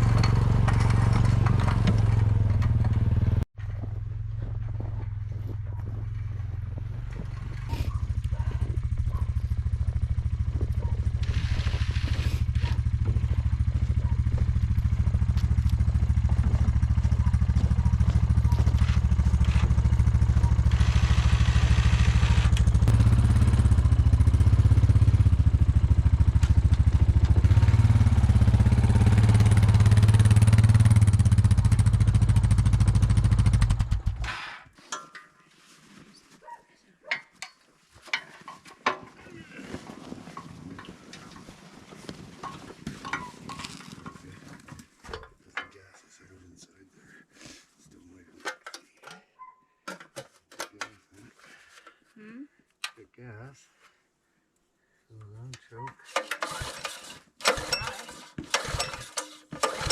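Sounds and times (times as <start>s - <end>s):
engine running with low rumble: 0.0s - 34.3s.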